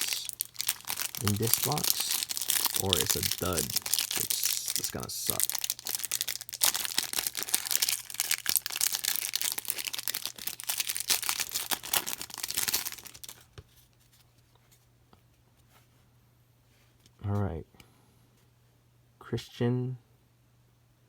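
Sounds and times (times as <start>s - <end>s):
wrapper tearing and crinkling: 0.0s - 13.5s.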